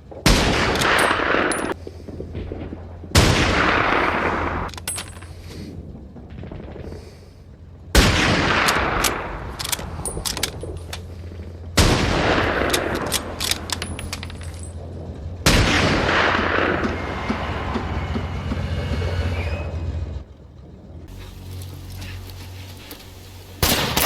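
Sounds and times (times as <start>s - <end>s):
rumbling echo: 0.0s - 24.0s
heavy gunfire bursts: 0.2s - 14.4s, 15.1s - 17.8s, 23.5s - 24.0s.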